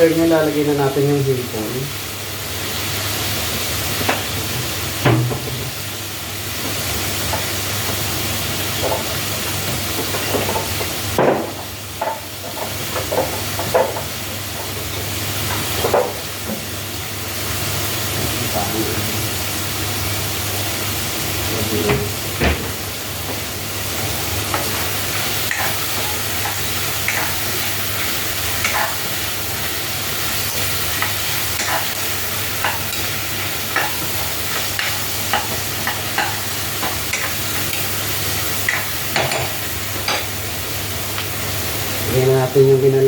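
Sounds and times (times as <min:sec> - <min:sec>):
food sizzling in a pan: 0:00.0 - 0:43.0.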